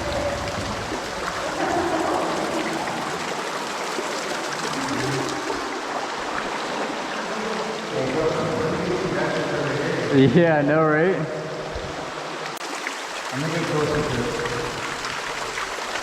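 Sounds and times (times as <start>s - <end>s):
water running and trickling: 0.0s - 8.8s, 12.2s - 16.0s.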